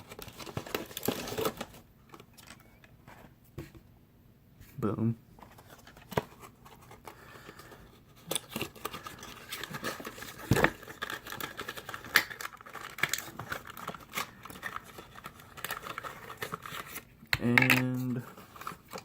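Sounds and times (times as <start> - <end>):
packaging crinkling and tearing: 0.0 - 2.8, 5.6 - 17.1.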